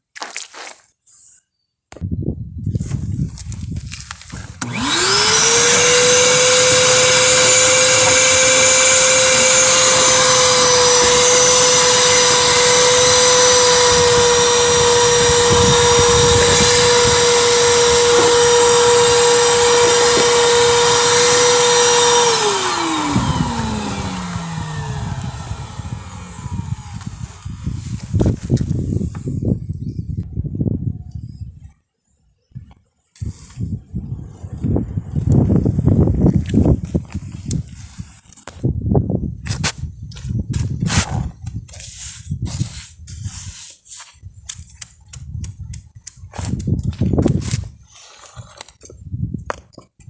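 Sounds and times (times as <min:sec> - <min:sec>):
drain-cleaning machine motor whine: 0:04.6 - 0:28.0.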